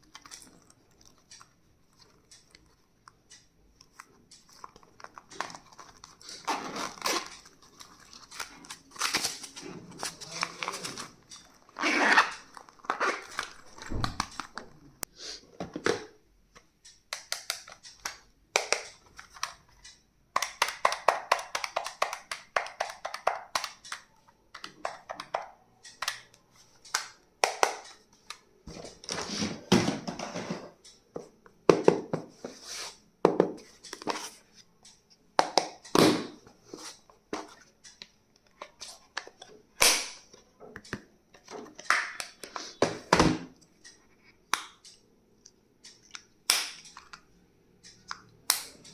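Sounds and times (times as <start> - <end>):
packaging crinkling and rustling: 4.5 - 14.8.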